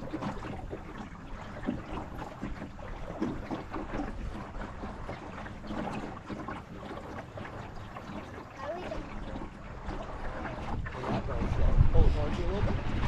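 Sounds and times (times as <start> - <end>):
water lapping against hull: 0.0 - 13.0
wind rumble on microphone: 7.8 - 13.0.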